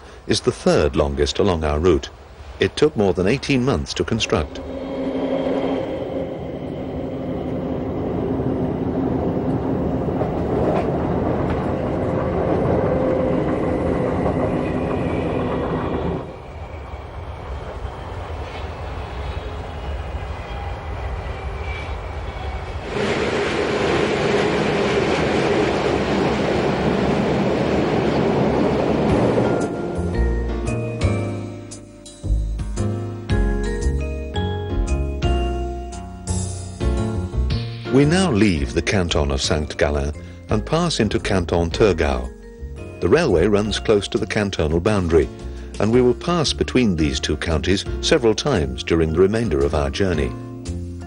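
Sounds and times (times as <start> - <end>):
train wheels clattering over rails: 4.8 - 31.5.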